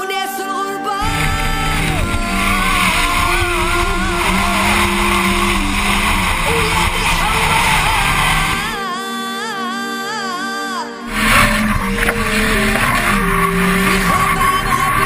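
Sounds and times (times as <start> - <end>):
music: 0.0 - 15.0
car engine revving: 1.0 - 8.8, 11.1 - 15.0
tyres skidding: 1.0 - 8.8, 11.1 - 15.0.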